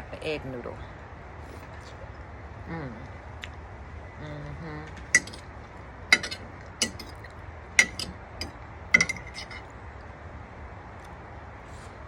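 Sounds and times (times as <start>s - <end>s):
metal utensil clinking on dish: 5.2s - 5.4s, 6.1s - 9.7s.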